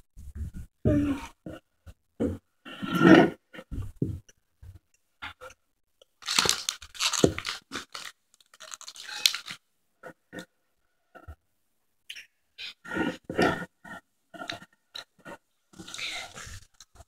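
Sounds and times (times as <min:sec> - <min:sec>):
child chewing popcorn: 0:06.0 - 0:09.6, 0:13.4 - 0:17.0.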